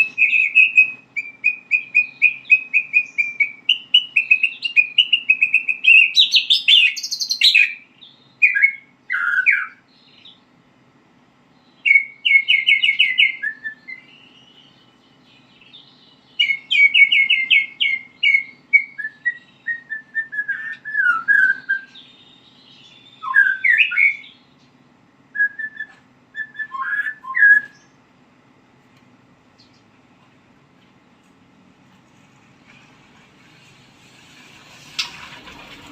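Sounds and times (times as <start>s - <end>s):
songbird singing varied phrases: 0.0s - 10.6s, 11.4s - 28.1s.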